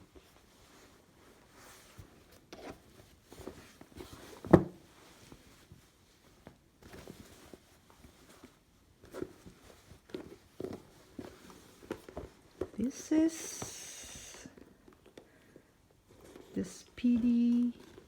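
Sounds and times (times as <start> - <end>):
packaging rustling and knocking: 2.4 - 5.5.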